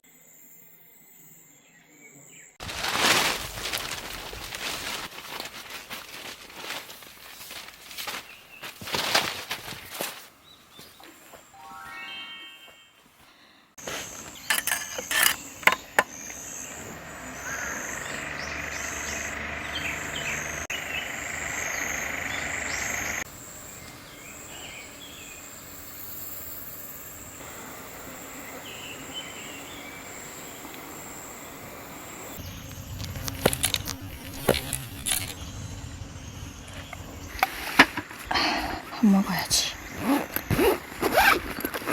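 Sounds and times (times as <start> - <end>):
grass insects trilling: 2.6 - 11.4, 13.8 - 41.9.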